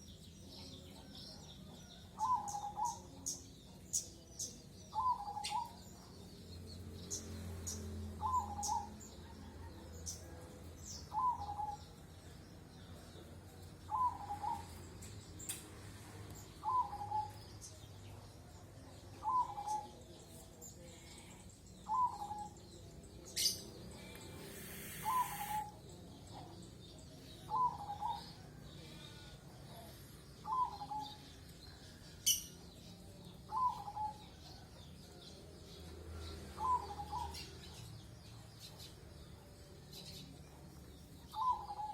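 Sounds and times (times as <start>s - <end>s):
bird calling: 24.1s - 25.8s
brief hiss: 24.4s - 25.7s.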